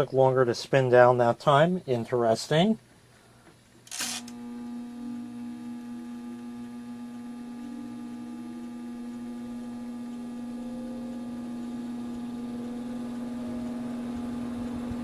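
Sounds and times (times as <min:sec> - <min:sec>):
small fans humming: 0:00.0 - 0:15.0
fan purring: 0:03.4 - 0:15.0.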